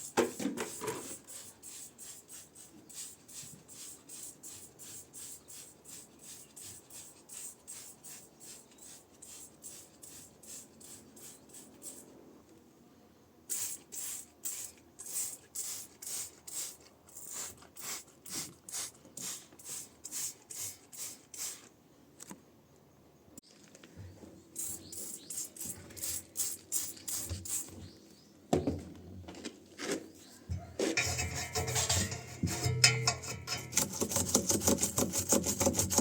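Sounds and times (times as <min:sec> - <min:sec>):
scrubbing strokes: 0:30.8 - 0:36.0.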